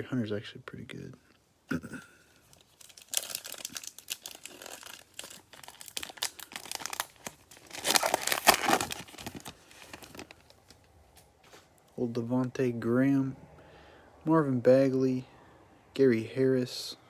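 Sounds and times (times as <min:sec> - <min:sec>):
wrapper crinkling and tearing: 0:02.4 - 0:11.3.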